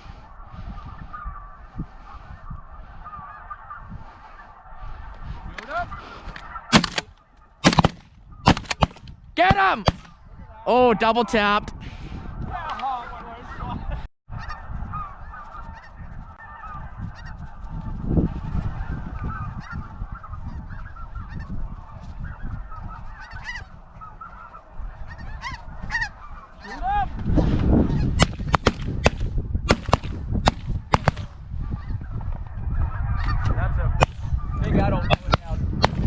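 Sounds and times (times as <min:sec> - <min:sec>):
geese honking: 0:00.7 - 0:10.1, 0:14.4 - 0:17.5, 0:18.7 - 0:26.9
sharp loud cracks: 0:06.7 - 0:10.1, 0:28.2 - 0:31.3, 0:35.1 - 0:36.0.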